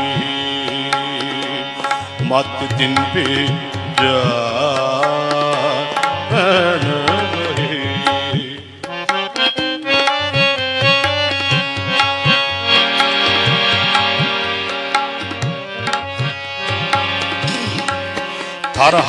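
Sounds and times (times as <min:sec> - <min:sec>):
harmonium melody: 0:00.0 - 0:19.0
tabla drumming: 0:00.0 - 0:19.0.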